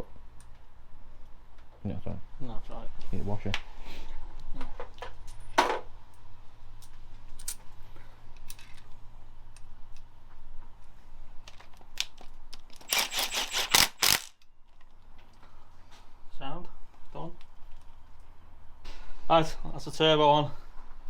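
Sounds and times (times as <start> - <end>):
metal tools clicking and clinking: 12.8 - 14.4.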